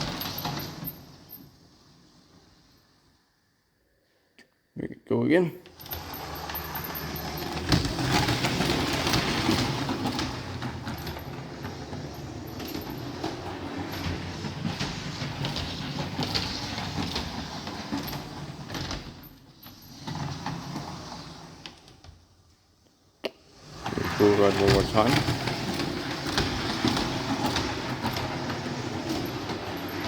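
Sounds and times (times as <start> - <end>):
model train wheels rattling on track: 5.8 - 19.9, 23.6 - 30.0.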